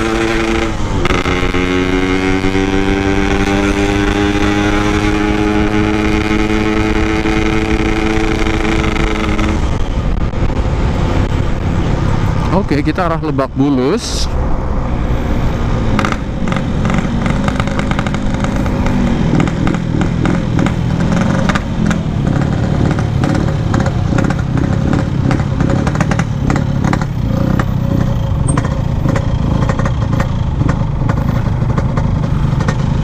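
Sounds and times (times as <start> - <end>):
two-stroke motorcycle engine: 0.0 - 12.5, 15.8 - 33.0.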